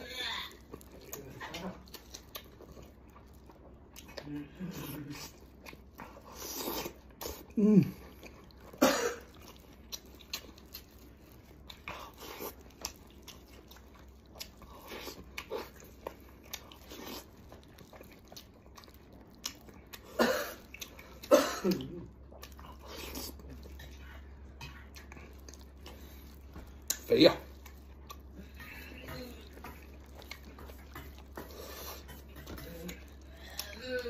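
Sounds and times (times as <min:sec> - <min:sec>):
wet chewing and lip-smacking: 0:00.0 - 0:34.0.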